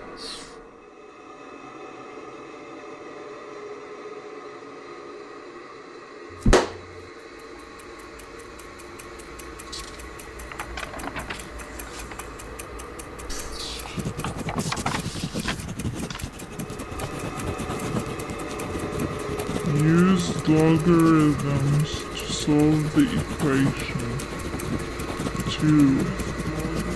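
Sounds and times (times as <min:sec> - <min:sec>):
steady hum: 0:00.0 - 0:26.9
loud bang: 0:06.4 - 0:06.9
fast even ticking: 0:07.0 - 0:26.9
paper rustling: 0:13.7 - 0:26.9.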